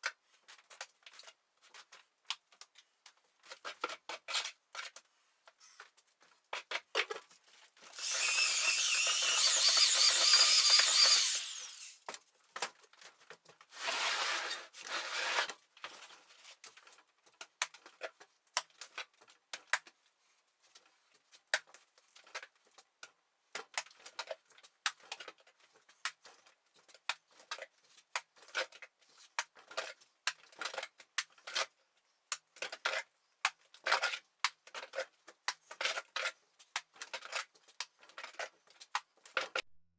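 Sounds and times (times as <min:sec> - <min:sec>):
power drill running: 0:08.0 - 0:12.0.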